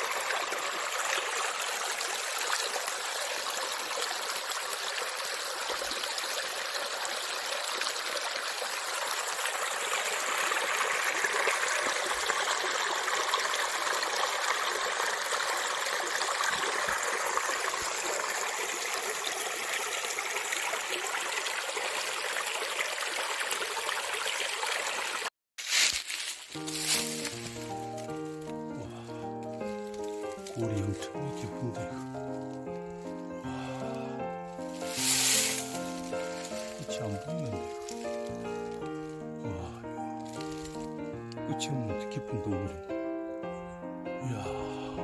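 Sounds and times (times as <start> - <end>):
stream water running: 0.0 - 43.0
music: 26.6 - 45.0.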